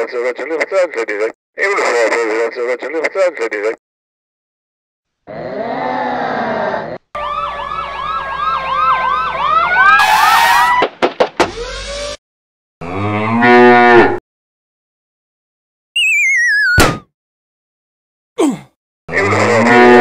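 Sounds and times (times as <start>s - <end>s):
siren wailing: 7.2s - 10.8s
cow mooing: 12.8s - 14.2s, 19.1s - 20.0s
short drawn-out voice: 18.4s - 19.5s.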